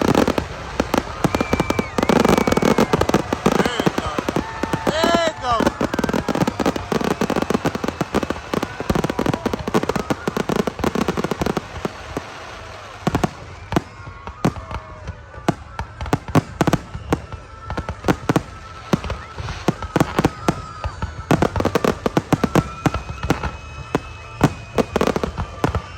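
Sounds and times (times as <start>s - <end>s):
fireworks crackling: 0.0s - 25.9s.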